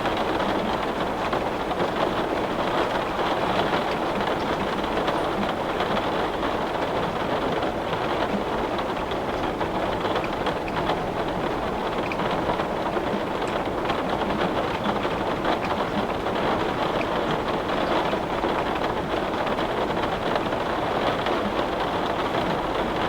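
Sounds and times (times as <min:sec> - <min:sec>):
heavy rain on a window: 0:00.0 - 0:23.0.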